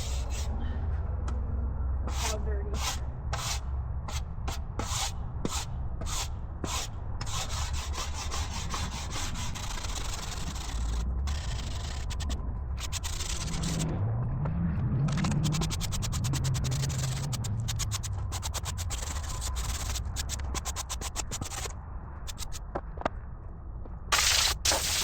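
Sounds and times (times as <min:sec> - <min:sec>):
wire brush scrubbing wood: 0:02.1 - 0:03.6, 0:15.3 - 0:21.7, 0:24.2 - 0:25.0.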